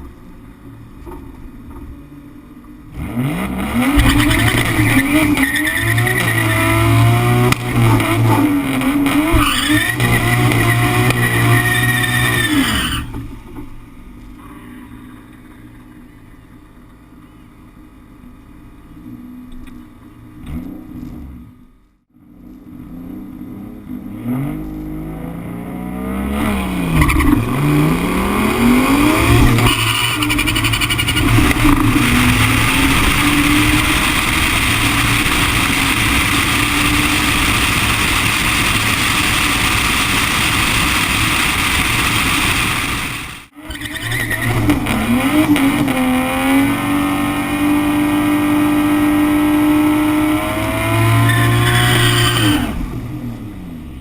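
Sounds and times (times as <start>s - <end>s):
drag car engine revving: 2.9s - 13.4s, 22.9s - 53.9s.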